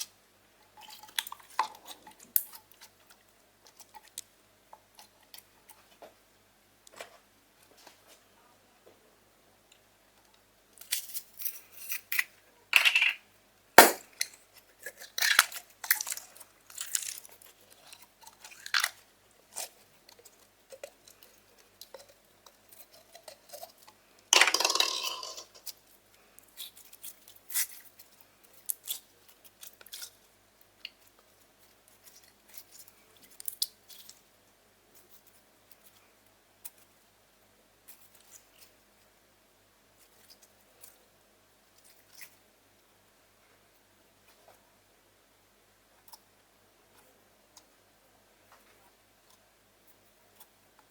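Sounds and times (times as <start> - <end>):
slime popping and crackling: 13.8 - 17.4.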